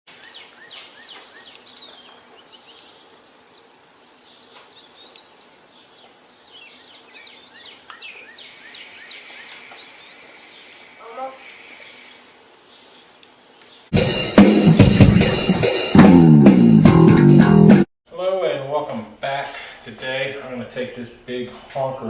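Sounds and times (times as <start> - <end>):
songbirds chirping and singing: 0.1 - 13.9.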